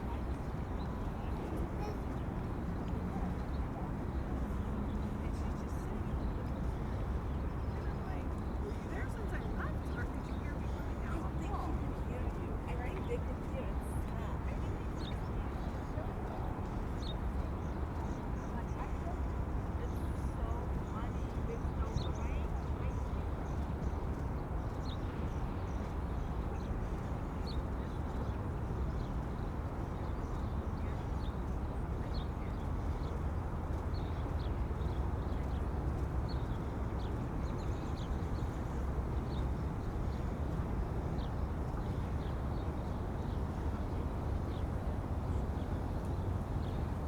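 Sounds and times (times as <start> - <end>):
low wind rumble: 2.4 - 47.0.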